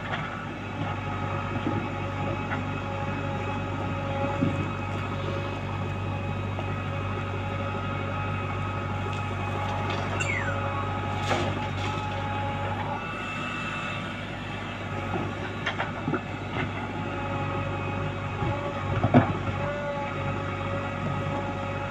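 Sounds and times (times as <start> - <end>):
diesel machinery running: 0.0 - 21.9
whining tones: 4.4 - 18.8
falling squeal: 10.2 - 10.7.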